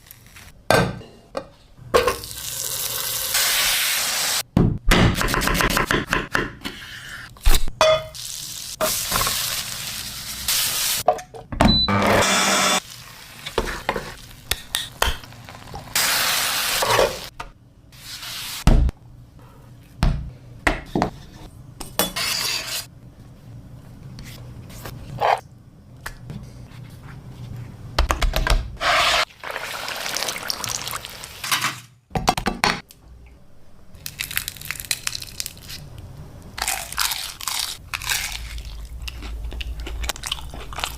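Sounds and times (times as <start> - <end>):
food sizzling in hot oil: 8.2 - 11.0, 15.3 - 17.3, 29.0 - 31.4.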